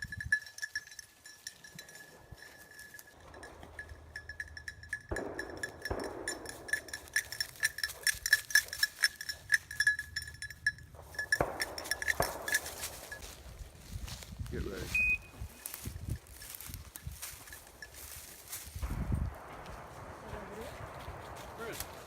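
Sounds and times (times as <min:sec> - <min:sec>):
dog collar bell jingling: 0:00.0 - 0:13.5, 0:15.5 - 0:18.8
brushy rustling: 0:05.8 - 0:22.0.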